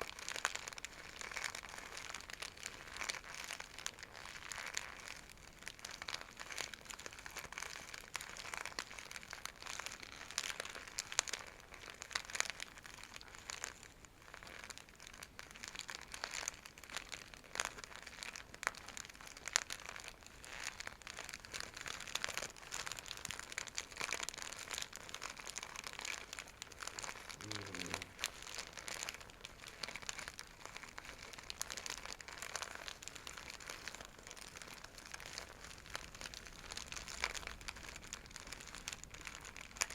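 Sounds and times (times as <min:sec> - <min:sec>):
bag scratching and crinkling: 0:20.5 - 0:39.9.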